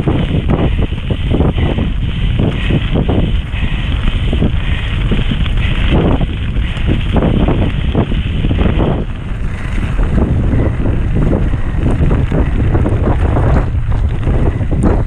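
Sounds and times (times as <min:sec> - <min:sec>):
bike rattling over rough ground: 0:00.0 - 0:15.0
wind buffeting microphone: 0:00.0 - 0:15.0.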